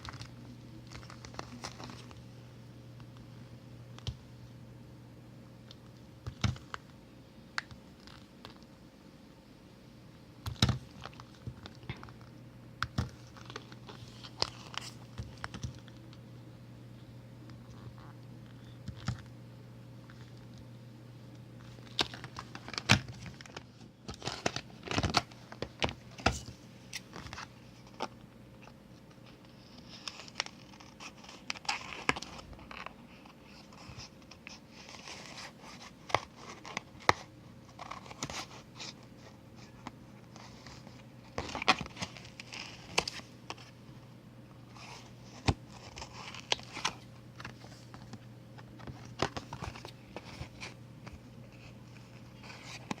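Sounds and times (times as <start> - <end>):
paper and plastic crinkling: 0.0 - 2.3, 12.9 - 16.1, 21.6 - 43.8, 44.6 - 53.0
steady low hum: 0.0 - 53.0.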